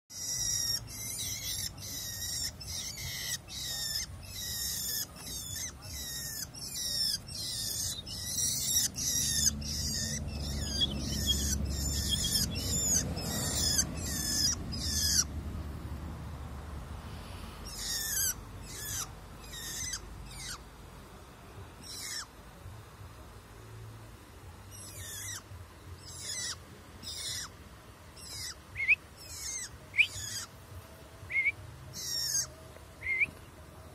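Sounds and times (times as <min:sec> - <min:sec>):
bird harsh rasping calls: 0:00.1 - 0:15.4, 0:17.6 - 0:20.7, 0:21.8 - 0:22.4, 0:24.7 - 0:27.6, 0:28.2 - 0:30.6, 0:31.3 - 0:33.3
faint low rumble: 0:00.2 - 0:33.9.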